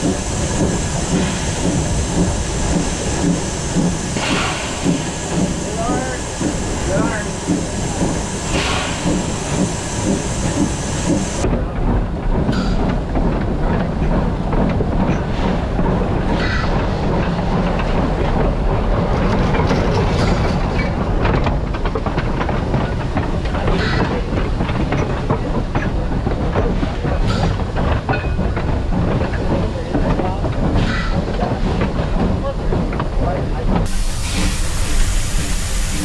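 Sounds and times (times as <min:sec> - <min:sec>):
steam hissing: 0:00.0 - 0:11.4, 0:33.8 - 0:36.0
train low rumble: 0:00.0 - 0:36.0
train wheels clicking on rail joints: 0:00.0 - 0:36.0.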